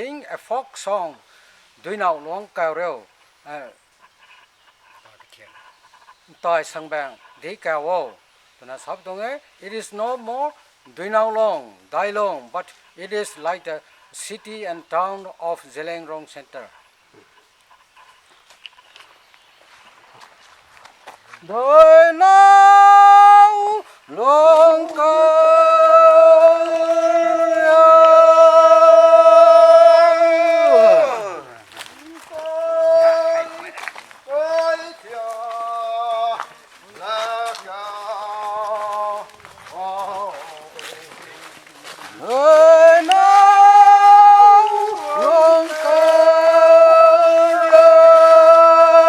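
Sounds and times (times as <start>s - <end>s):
men singing unaccompanied: 9.8s - 12.4s, 21.4s - 49.0s.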